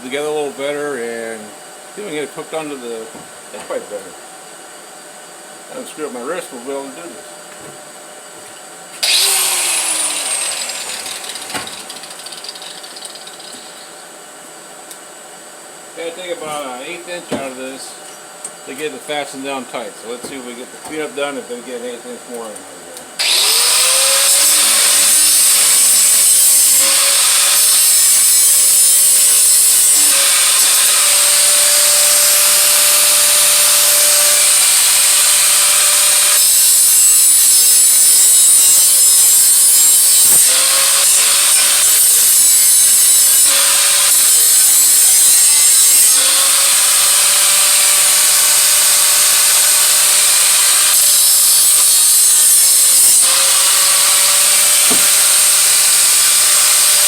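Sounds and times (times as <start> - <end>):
power grinder grinding metal: 9.0 - 13.9, 23.2 - 57.0.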